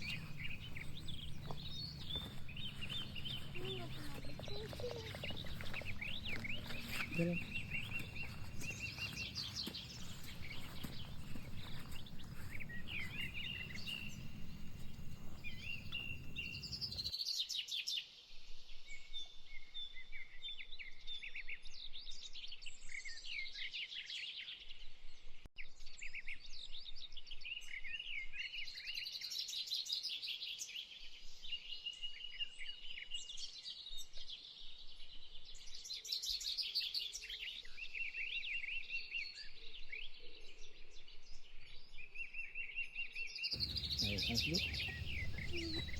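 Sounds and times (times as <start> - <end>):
small birds chirping: 0.0 - 17.1, 43.6 - 45.9.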